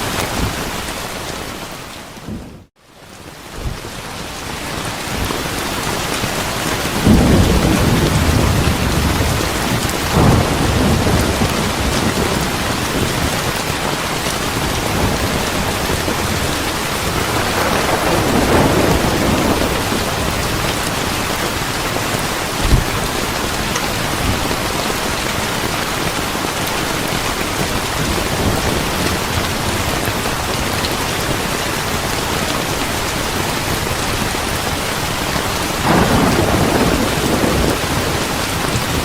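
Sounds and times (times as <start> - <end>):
heavy rain: 0.0 - 39.0
thunder rolling: 7.0 - 13.8, 14.5 - 21.7, 35.8 - 39.0.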